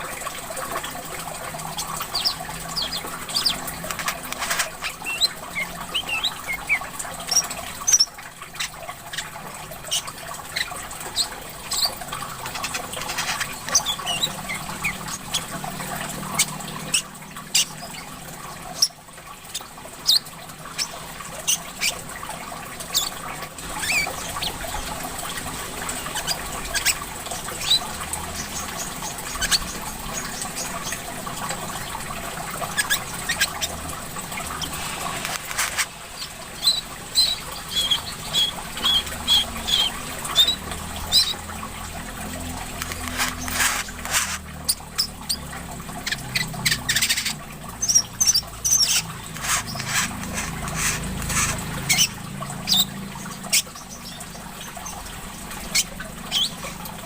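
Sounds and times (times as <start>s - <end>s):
trickling water: 0.0s - 57.0s
sunbird chirping and twittering: 1.6s - 22.1s, 22.8s - 31.1s, 32.6s - 41.6s, 42.9s - 55.0s, 55.6s - 56.8s.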